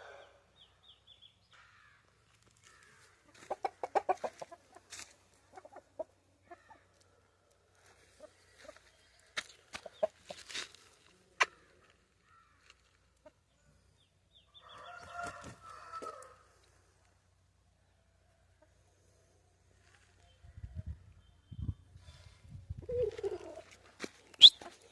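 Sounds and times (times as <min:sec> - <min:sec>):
rooster crowing: 0:14.6 - 0:16.4.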